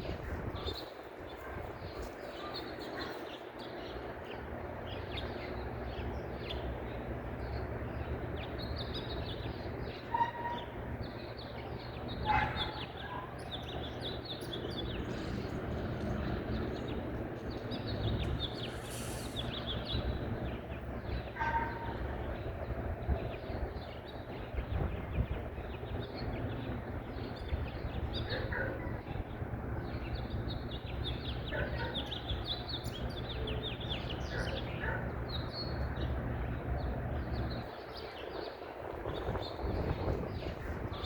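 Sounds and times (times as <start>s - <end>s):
songbirds chirping and twittering: 0.0s - 41.0s
louder lower bird calls: 17.6s - 20.2s.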